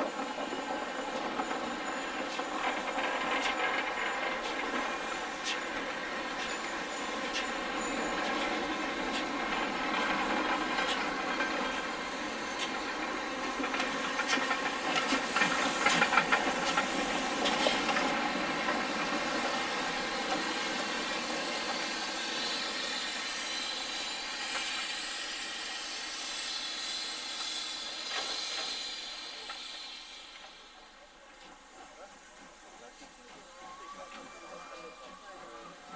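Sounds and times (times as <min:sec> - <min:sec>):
locomotive running with hiss: 0:00.0 - 0:35.9.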